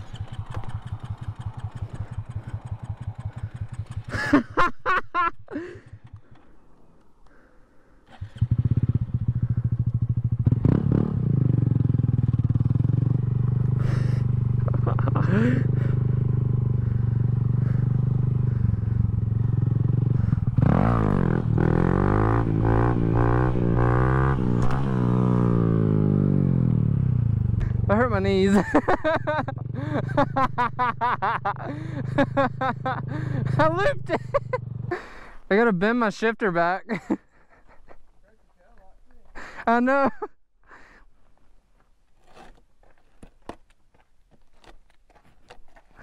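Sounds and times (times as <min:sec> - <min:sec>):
motorcycle engine idling: 0:00.0 - 0:04.7, 0:05.5 - 0:24.4, 0:25.9 - 0:35.4.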